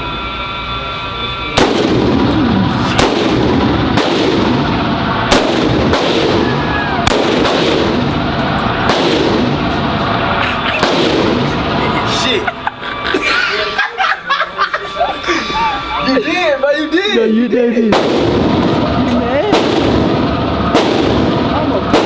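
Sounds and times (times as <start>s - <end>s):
gunshots echoing indoors: 1.6s - 10.2s, 10.8s - 11.7s, 17.9s - 22.0s.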